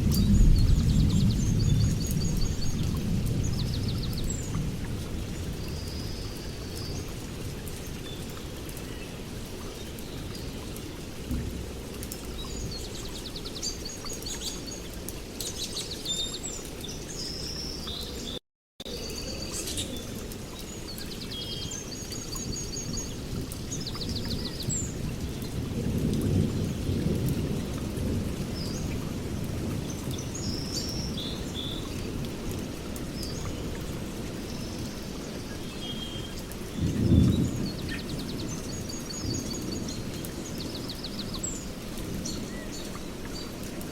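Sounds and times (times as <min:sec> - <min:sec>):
low rolling thunder: 0:00.0 - 0:06.0, 0:23.1 - 0:30.1, 0:36.7 - 0:40.5
steady rain: 0:00.0 - 0:43.9
birds chirping and trilling: 0:33.2 - 0:43.8.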